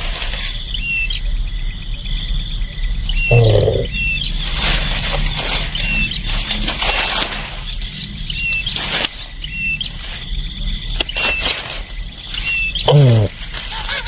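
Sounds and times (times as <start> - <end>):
pulsing insect-like trill: 0.0 - 14.0
small bird chirping: 2.8 - 14.0.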